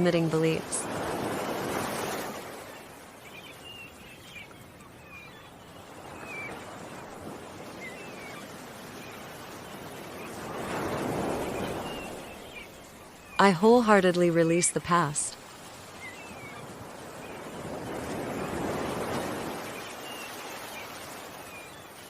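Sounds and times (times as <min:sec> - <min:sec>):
ocean waves washing on shore: 0:00.0 - 0:22.0
small birds chirping: 0:02.1 - 0:22.0.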